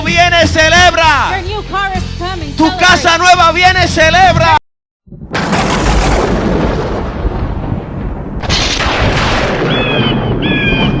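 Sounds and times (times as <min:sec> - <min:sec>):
loud rumbling boom: 0:05.1 - 0:11.0.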